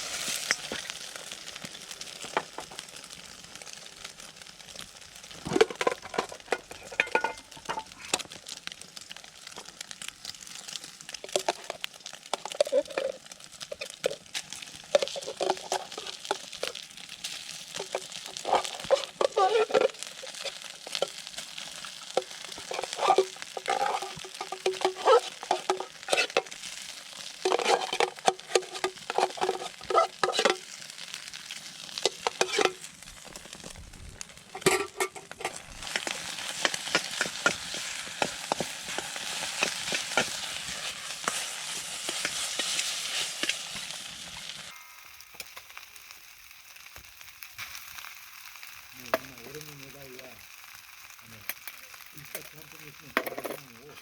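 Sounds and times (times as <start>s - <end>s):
food frying in a pan: 0.0s - 54.0s
utensil scraping and knocking pan: 5.4s - 8.2s, 14.9s - 16.5s, 17.8s - 21.2s, 22.2s - 26.6s, 27.4s - 30.7s, 32.0s - 32.8s, 34.5s - 44.0s.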